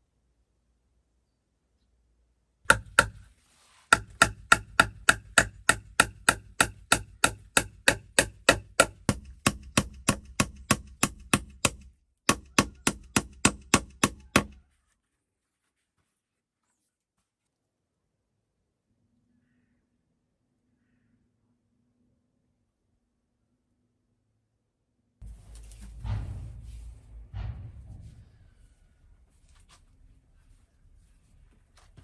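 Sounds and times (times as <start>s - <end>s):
sharp strikes on wood: 2.7s - 3.3s, 3.9s - 14.6s.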